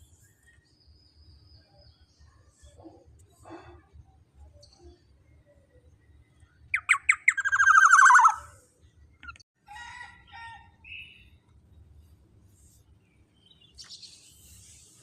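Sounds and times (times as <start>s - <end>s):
bird calling sharp notes: 6.8s - 8.5s
harsh rasping bird call: 6.8s - 8.5s.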